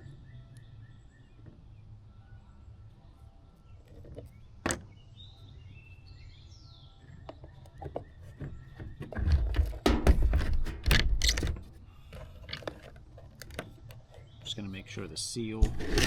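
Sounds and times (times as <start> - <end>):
clattering knocks and rustling: 7.8 - 13.7.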